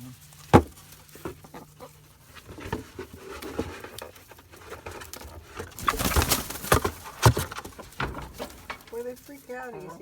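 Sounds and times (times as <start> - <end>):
hens cooing murmurs: 0.0 - 3.3
cardboard box rustling: 0.0 - 10.0.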